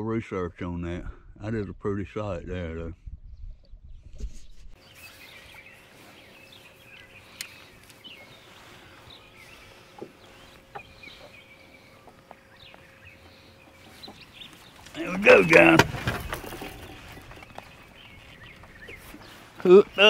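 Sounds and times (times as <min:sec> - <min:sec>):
birds chirping: 0:04.8 - 0:20.0
faint steady hum: 0:05.1 - 0:15.6
light clicks: 0:07.0 - 0:08.0.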